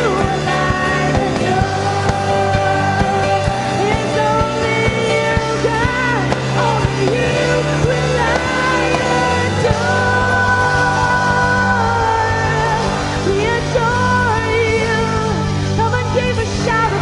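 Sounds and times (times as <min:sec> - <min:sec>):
live band playing: 0:00.0 - 0:17.0
person singing: 0:00.0 - 0:17.0.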